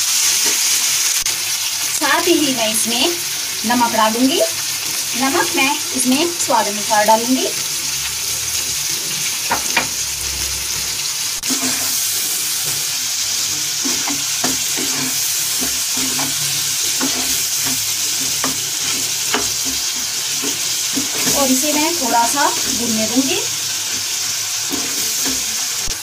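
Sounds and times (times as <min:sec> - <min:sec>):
onions sizzling in hot oil: 0:00.0 - 0:26.0
wooden spatula knocking pan: 0:17.0 - 0:21.6.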